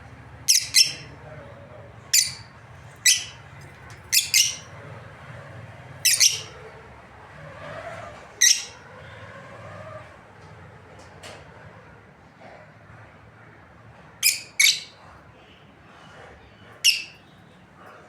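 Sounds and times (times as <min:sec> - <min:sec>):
lovebirds chirping shrilly: 0:00.5 - 0:01.2, 0:02.1 - 0:04.7, 0:06.0 - 0:06.6, 0:08.4 - 0:08.8, 0:14.2 - 0:15.0, 0:16.9 - 0:17.2.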